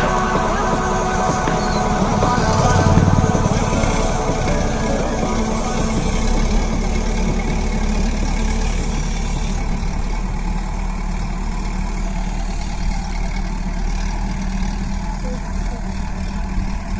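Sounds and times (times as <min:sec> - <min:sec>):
tractor engine running: 0:00.0 - 0:16.9.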